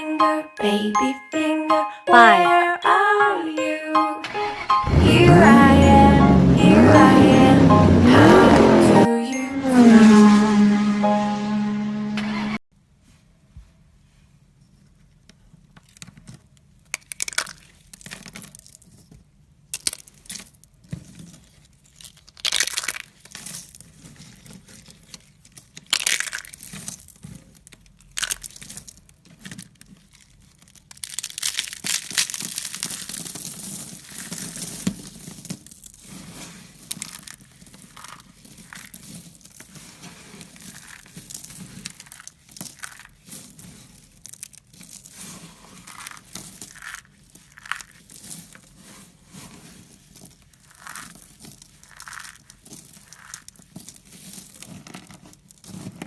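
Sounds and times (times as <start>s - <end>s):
crinkling and crushing crackles: 14.7s - 56.0s.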